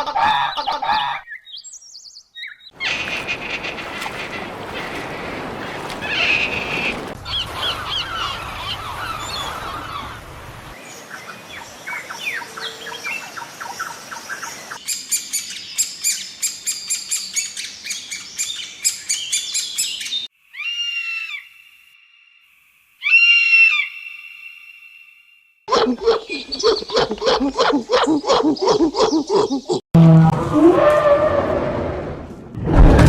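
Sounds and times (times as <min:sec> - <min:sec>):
birds chirping and calling: 0:00.0 - 0:10.2, 0:25.7 - 0:29.8.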